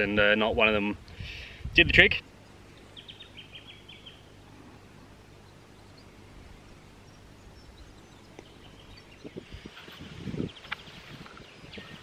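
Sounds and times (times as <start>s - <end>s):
low background hum: 0.9s - 9.7s
bird chirping: 2.2s - 12.0s.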